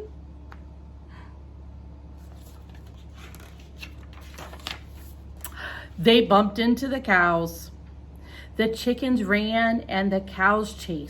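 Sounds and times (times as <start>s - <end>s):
low steady hum: 0.0s - 11.0s
paper page turning: 2.2s - 5.4s.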